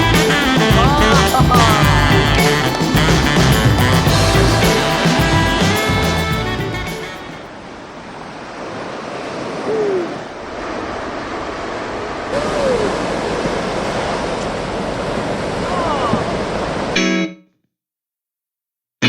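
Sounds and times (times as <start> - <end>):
background music: 0.0 - 7.4
ocean surf roaring: 0.0 - 17.0
short falling hoot-like call: 9.6 - 10.3.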